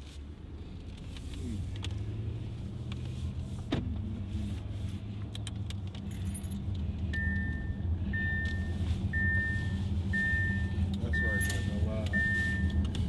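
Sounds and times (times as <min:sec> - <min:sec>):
car cabin engine and road drone: 0:00.0 - 0:13.0
high electronic beep: 0:10.2 - 0:12.8.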